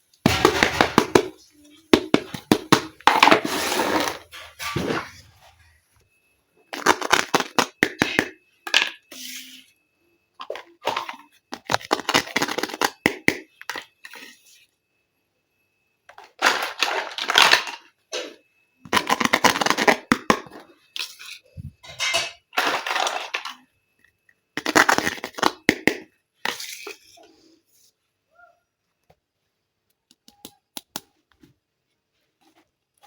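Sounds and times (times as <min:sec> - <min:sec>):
plastic packaging crinkling: 0:06.7 - 0:08.2.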